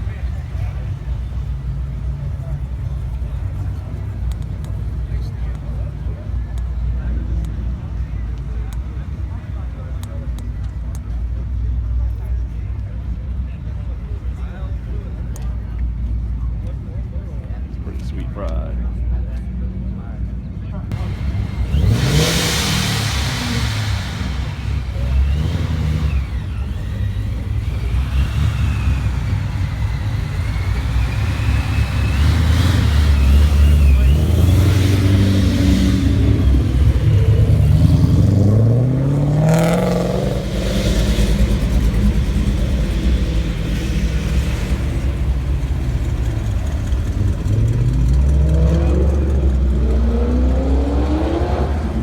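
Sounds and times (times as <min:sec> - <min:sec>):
car engines rumbling: 0:00.0 - 0:52.0
car engine revving: 0:20.9 - 0:52.0.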